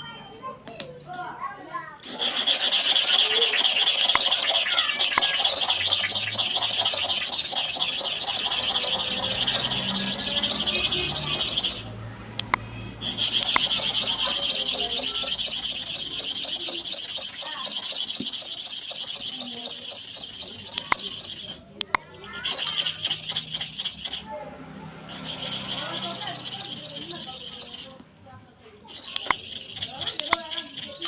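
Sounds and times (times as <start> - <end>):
clipper blade scraping on sharpener: 2.0 - 24.3, 28.8 - 31.0.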